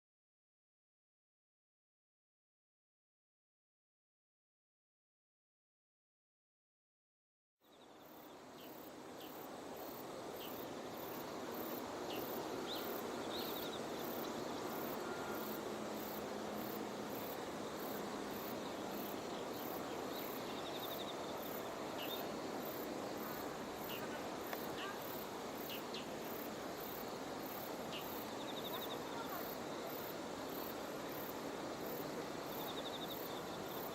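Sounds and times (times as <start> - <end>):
steady background hiss: 7.6 - 33.9
short insect calls: 7.7 - 33.9
high-pitched insect chirping: 8.0 - 33.9.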